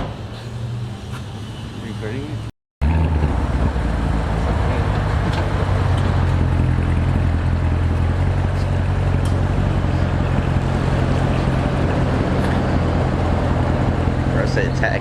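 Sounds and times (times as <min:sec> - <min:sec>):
car engine idling: 0:03.4 - 0:15.0.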